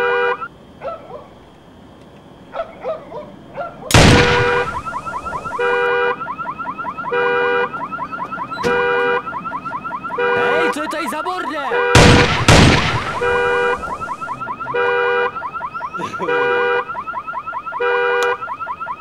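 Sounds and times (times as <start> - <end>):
sudden loud bang: 3.9 - 5.6, 12.0 - 14.3
car alarm warbling and blaring: 4.0 - 19.0.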